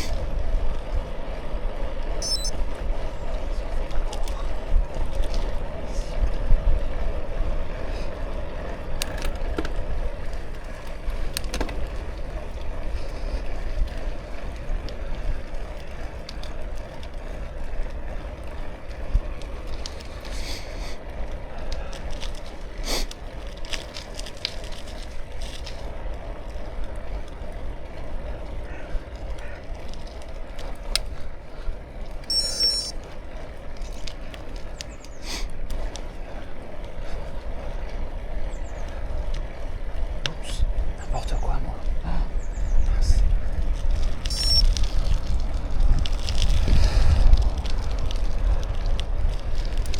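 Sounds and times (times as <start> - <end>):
bicycle tyres rolling: 0.0 - 49.9
bike clicks and rattles: 0.0 - 49.9
wind rumble on microphone: 0.0 - 49.9.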